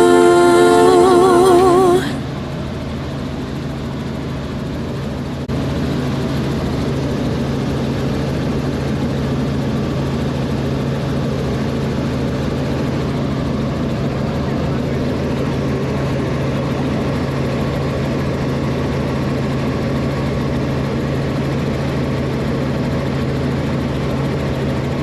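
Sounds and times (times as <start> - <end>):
song: 0.0 - 2.2
helicopter drone: 0.0 - 25.0.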